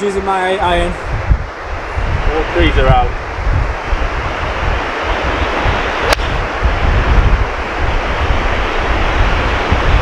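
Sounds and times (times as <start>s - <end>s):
wind buffeting microphone: 0.0s - 10.0s
golf club striking ball: 6.0s - 6.4s.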